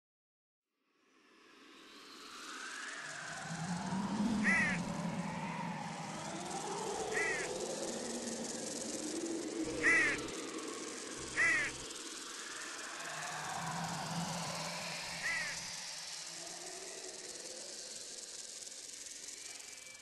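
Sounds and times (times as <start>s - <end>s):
bird cawing: 4.4s - 4.8s, 7.1s - 7.5s, 9.7s - 10.3s, 11.2s - 11.8s, 15.2s - 15.6s
wavering whistle-like tones: 7.1s - 7.5s.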